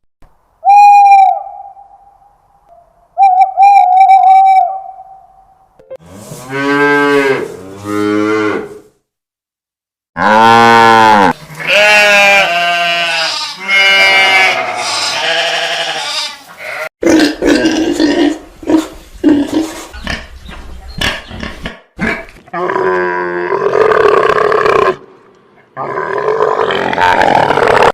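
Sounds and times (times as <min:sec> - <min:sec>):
animal calls with wavering pitch: 0:02.8 - 0:05.6.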